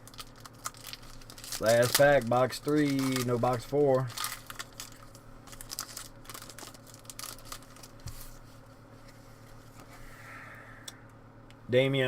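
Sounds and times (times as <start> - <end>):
card wrapper crinkling and tearing: 0.0 - 8.1.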